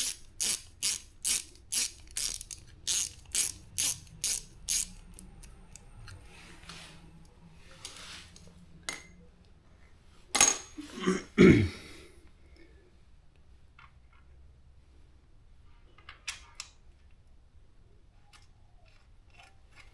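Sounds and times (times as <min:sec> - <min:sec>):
ratchet wrench clicking: 0:00.0 - 0:06.2.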